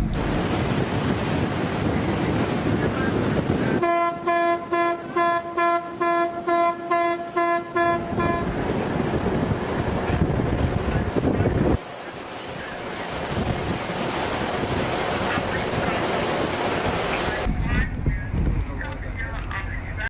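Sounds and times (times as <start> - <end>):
wind and sea rushing: 0.0 - 20.0
ship's horn short blasts: 3.8 - 8.6.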